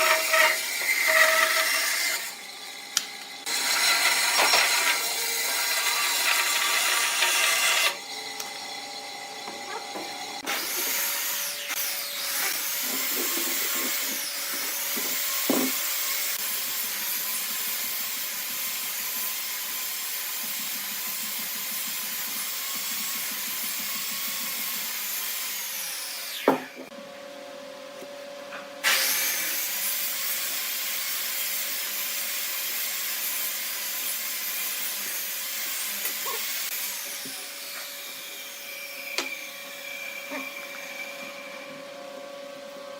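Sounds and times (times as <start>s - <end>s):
power tool running on wood: 0.0s - 15.8s.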